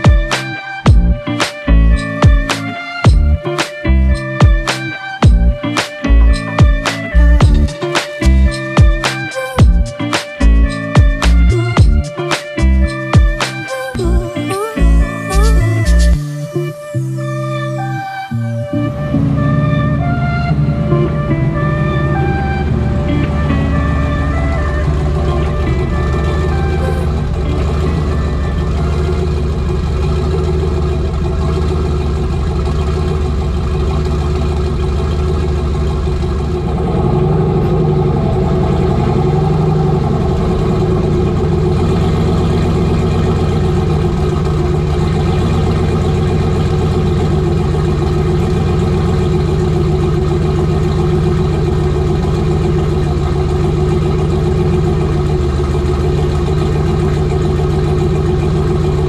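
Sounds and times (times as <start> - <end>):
pickup truck engine running: 3.1 - 4.4, 19.2 - 59.0.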